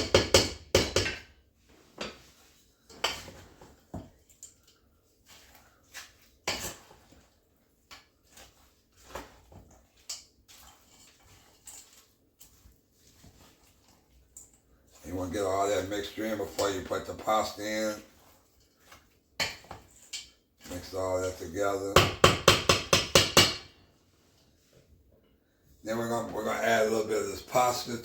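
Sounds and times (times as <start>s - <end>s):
utensil scraping a mixing bowl: 1.8s - 22.0s.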